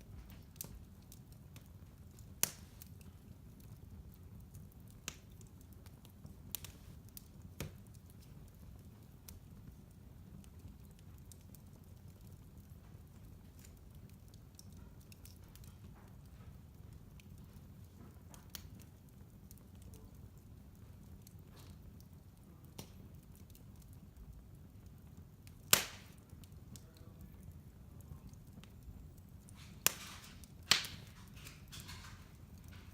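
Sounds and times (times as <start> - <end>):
wood fire crackling: 0.0 - 32.9.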